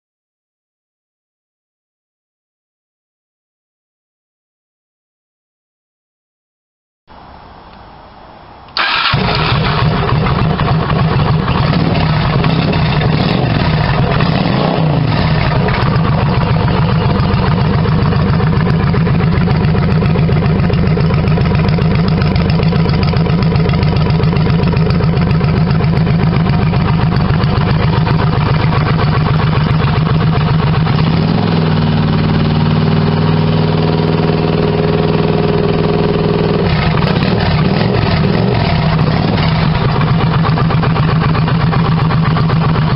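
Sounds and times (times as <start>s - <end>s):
motorcycle engine idling and revving: 8.8s - 42.9s.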